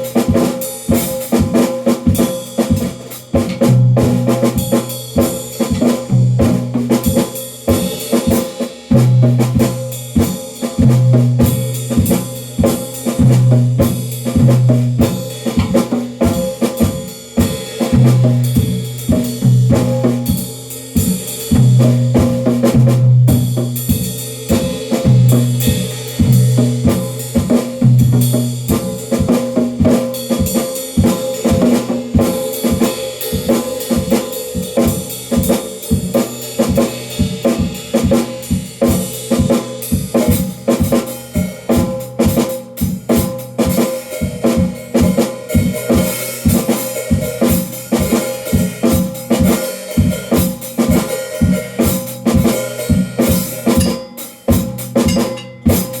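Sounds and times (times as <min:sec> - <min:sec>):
drum kit playing fast: 0:00.0 - 0:56.0
low tone: 0:55.1 - 0:55.8.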